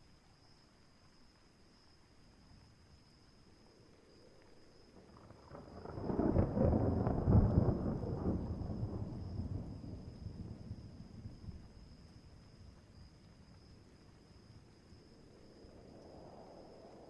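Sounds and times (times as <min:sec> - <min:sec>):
thunder rumbling: 0:05.0 - 0:12.7.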